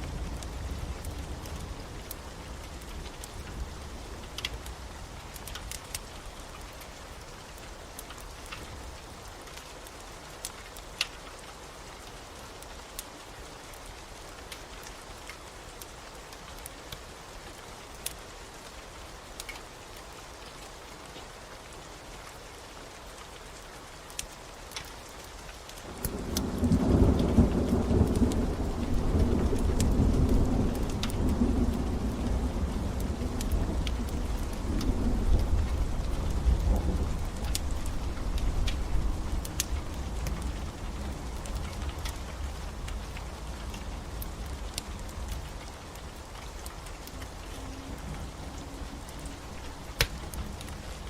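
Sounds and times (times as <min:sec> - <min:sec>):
steady rain: 0:00.0 - 0:51.0
wood fire crackling and popping: 0:00.1 - 0:13.1, 0:24.0 - 0:51.0
low rumble of thunder: 0:25.9 - 0:51.0.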